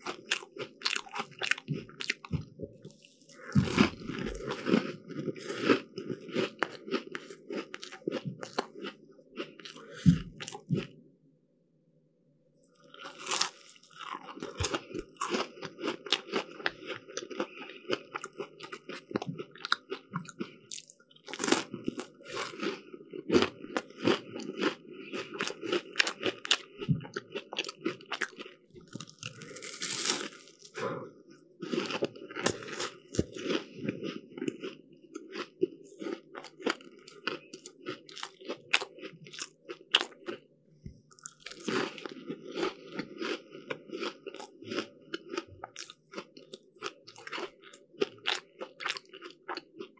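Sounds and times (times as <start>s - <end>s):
crunchy pastry chewing: 0.0s - 10.9s, 12.7s - 31.0s, 31.6s - 40.5s, 41.1s - 49.9s.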